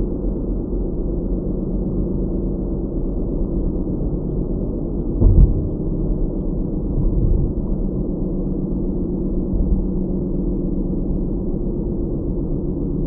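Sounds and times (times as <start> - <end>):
car driving rumble: 5.0 - 10.1
low thump: 5.2 - 6.2, 7.0 - 7.8.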